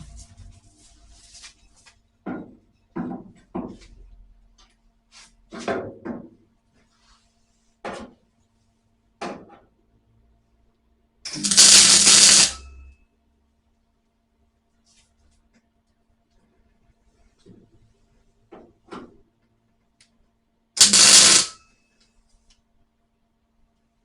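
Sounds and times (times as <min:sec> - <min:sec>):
welding burst: 0:11.3 - 0:12.8, 0:20.8 - 0:21.6.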